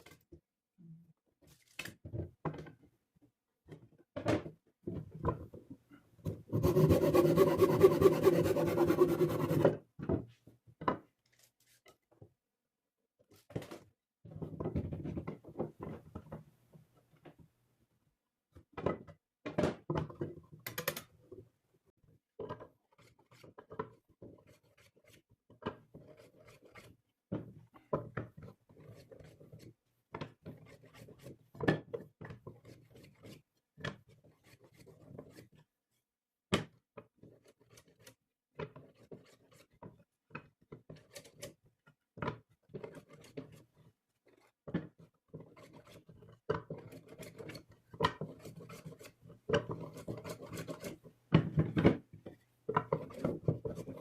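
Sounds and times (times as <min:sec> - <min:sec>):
rubbing and scraping on wood: 0:06.5 - 0:09.8, 0:42.7 - 0:51.0, 0:52.8 - 0:54.0.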